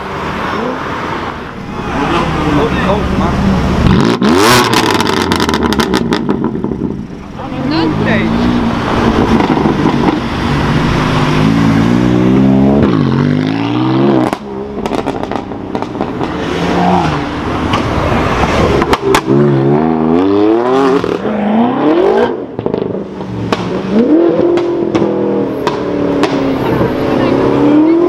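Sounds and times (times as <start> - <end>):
car engine accelerating hard: 0.0 - 28.0
exhaust cracks: 1.8 - 7.4, 12.8 - 19.6.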